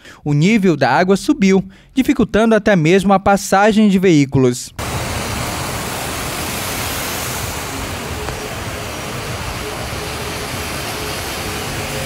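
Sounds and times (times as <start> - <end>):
heavy rain and floodwater rushing: 4.8 - 12.0.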